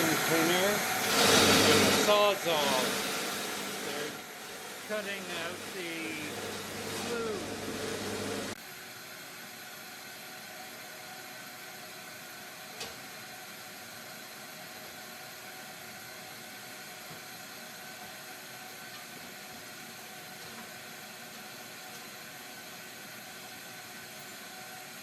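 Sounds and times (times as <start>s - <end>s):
vacuum cleaner motor whirring: 0.0s - 8.6s.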